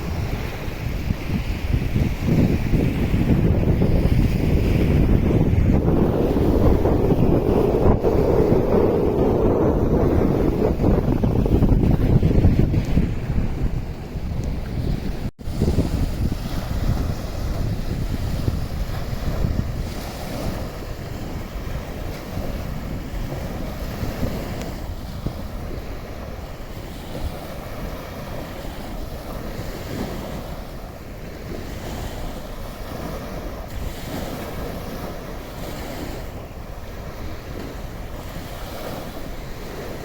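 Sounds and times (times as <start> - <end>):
waves washing onto sandy beach: 0.0 - 40.0
wind rumble on microphone: 0.0 - 40.0.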